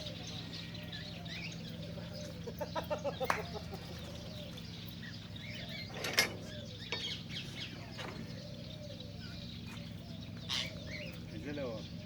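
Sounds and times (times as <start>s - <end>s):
cockatiels chirping: 9.2s - 11.8s.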